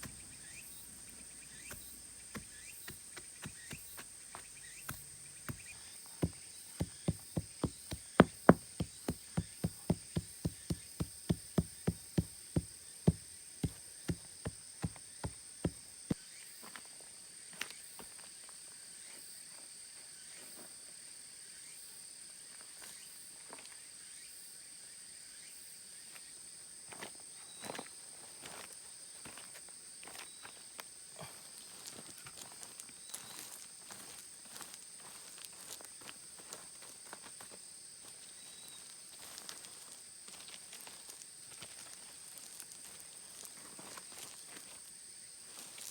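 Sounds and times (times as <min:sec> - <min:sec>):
insects droning: 0:00.0 - 0:16.7
sharp knocks: 0:04.9 - 0:15.8.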